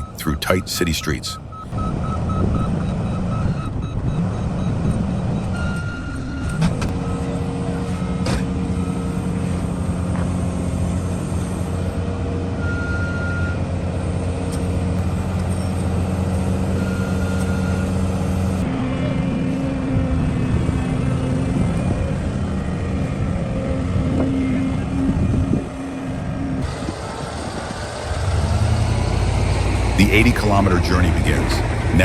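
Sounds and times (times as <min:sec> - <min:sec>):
reversing alarm beeps: 0:00.0 - 0:09.9, 0:12.6 - 0:13.6, 0:15.5 - 0:18.6
heavy diesel engine running: 0:00.0 - 0:32.0.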